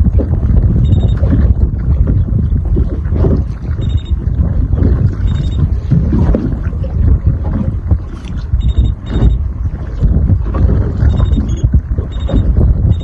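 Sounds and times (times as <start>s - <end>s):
boat knocking: 0.0s - 13.0s
wind buffeting microphone: 0.0s - 13.0s
faint high-pitched beeps: 0.8s - 1.2s, 3.8s - 4.2s, 5.2s - 5.6s, 8.6s - 9.4s, 11.1s - 13.0s.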